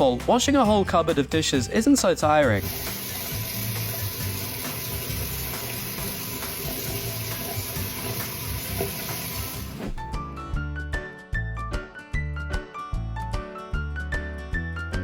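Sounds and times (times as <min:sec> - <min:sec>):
light background music: 0:00.0 - 0:15.0
tap water running into sink: 0:02.5 - 0:09.8.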